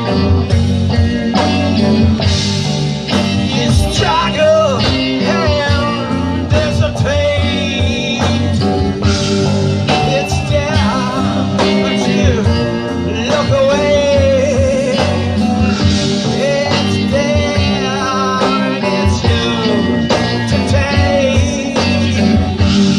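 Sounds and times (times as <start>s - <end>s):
person singing: 0.0s - 22.9s
rock band playing: 0.0s - 22.9s.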